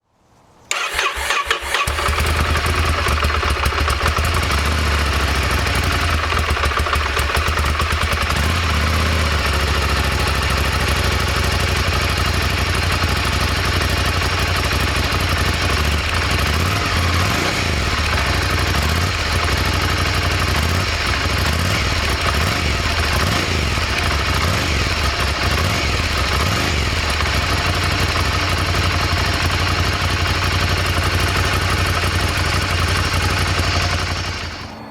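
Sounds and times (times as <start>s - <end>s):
motorcycle engine idling: 0.7s - 34.9s.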